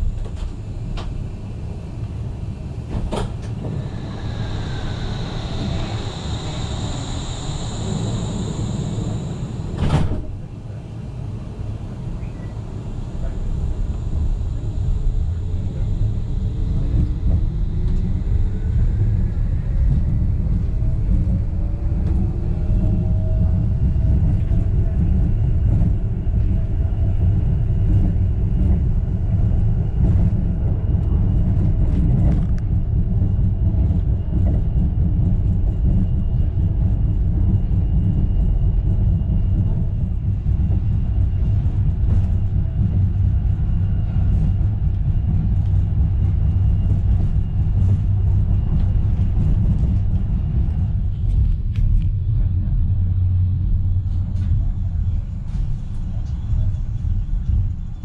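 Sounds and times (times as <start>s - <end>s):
train wheels rumbling: 0.0s - 58.0s
electric drive whine: 0.1s - 24.4s.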